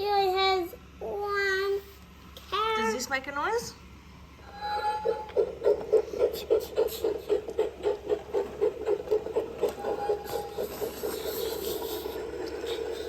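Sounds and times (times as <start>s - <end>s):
toy train motor whirring: 4.5s - 13.0s.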